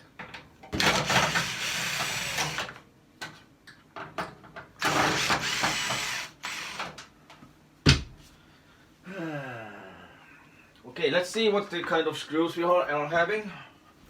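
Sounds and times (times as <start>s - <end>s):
screwdriver turning screws: 4.8s - 7.0s.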